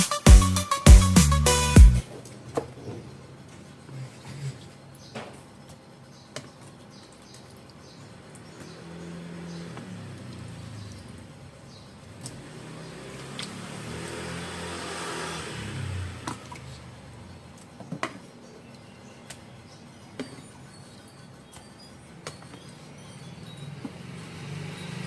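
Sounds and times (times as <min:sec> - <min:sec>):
motor engine passing by: 0:08.4 - 0:17.4, 0:23.2 - 0:25.0.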